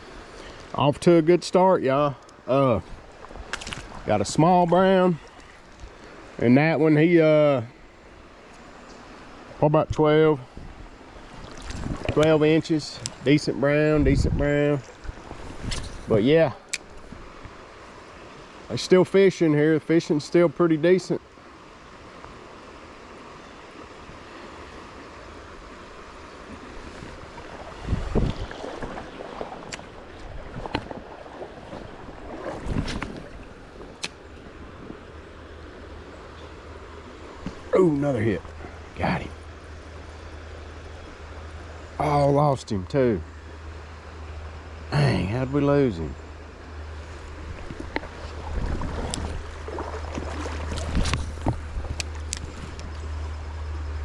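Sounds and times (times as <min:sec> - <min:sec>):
river water rushing: 0:00.0 - 0:54.0
wind buffeting microphone: 0:09.9 - 0:16.2, 0:26.6 - 0:35.1, 0:47.3 - 0:53.0
river water rushing over rocks: 0:46.8 - 0:53.8.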